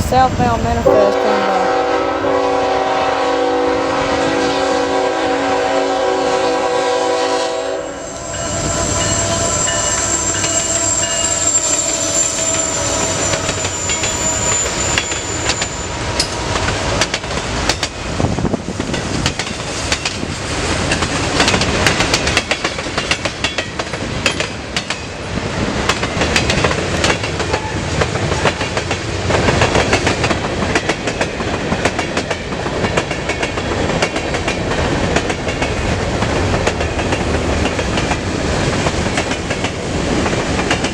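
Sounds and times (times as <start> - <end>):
train rumble: 0.0 - 40.9
high steady squeal: 7.8 - 16.7
train wheels clicking over rail joints: 9.0 - 40.9.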